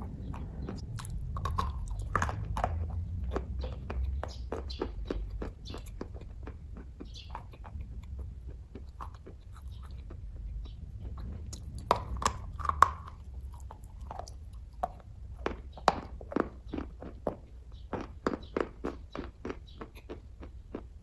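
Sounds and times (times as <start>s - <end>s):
low hum: 0.0s - 15.7s
person chewing: 0.0s - 21.0s.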